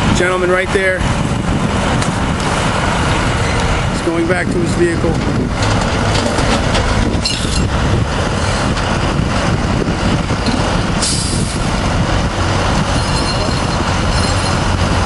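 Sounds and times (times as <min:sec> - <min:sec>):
truck engine rumbling: 0:00.0 - 0:15.0
hissing air burst: 0:11.0 - 0:11.7.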